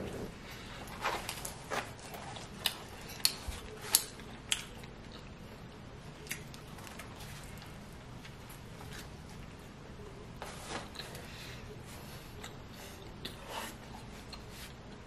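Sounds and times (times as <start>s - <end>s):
chewing with crunches: 0.0s - 9.1s.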